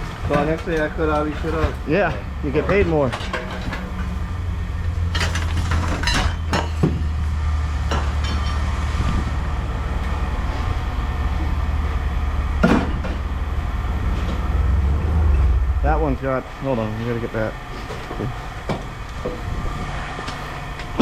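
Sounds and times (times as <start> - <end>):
low machine hum: 0.0 - 19.7
scrap metal clanking: 0.3 - 4.3, 5.1 - 7.0.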